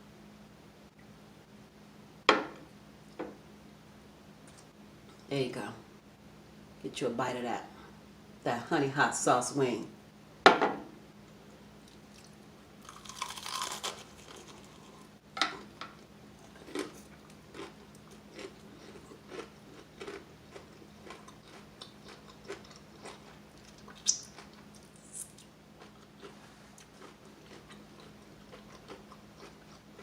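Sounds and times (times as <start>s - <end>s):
crunchy chewing: 11.8s - 30.0s
biting into crispy fried chicken: 11.9s - 15.7s.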